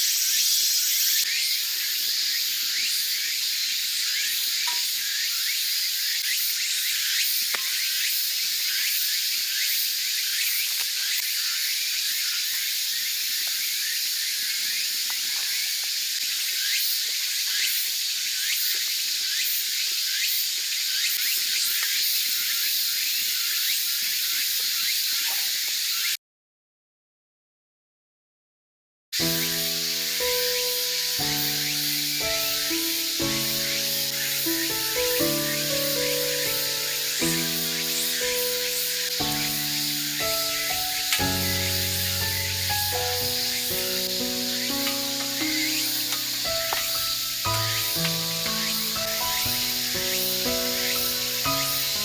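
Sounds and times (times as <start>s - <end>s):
wood fire crackling: 29.2s - 52.0s.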